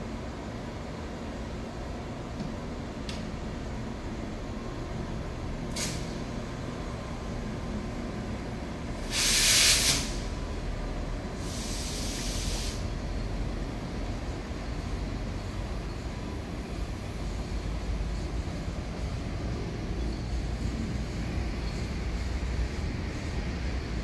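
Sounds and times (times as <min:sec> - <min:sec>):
freight train moving off: 0:00.0 - 0:24.0
air brake hiss: 0:05.7 - 0:06.3, 0:09.0 - 0:10.4, 0:11.4 - 0:12.9.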